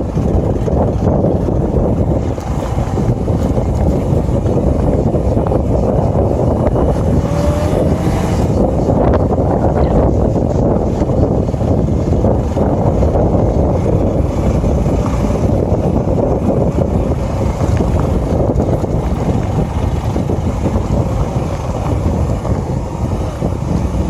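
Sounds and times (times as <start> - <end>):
motorcycle running: 0.0 - 24.0
wind buffeting microphone: 0.0 - 24.0.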